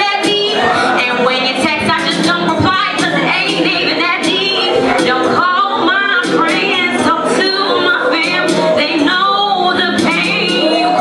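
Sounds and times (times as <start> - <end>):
backing track with steady beat: 0.0 - 11.0
woman singing: 0.0 - 11.0.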